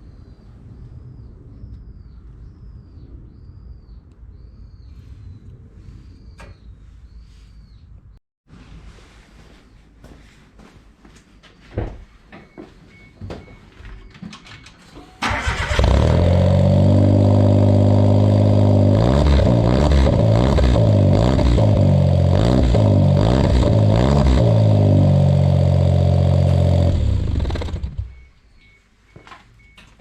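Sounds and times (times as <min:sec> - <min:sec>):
car engine idling and revving: 0:15.2 - 0:28.8.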